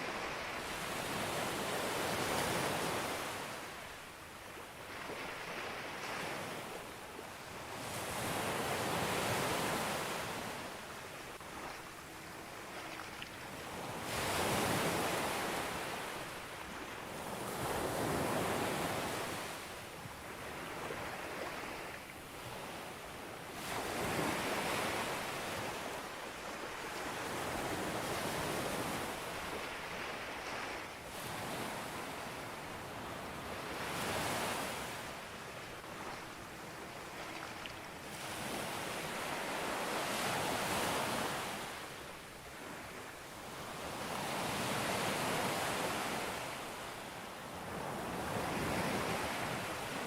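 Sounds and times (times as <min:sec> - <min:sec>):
sea waves breaking on beach: 0:23.5 - 0:50.0.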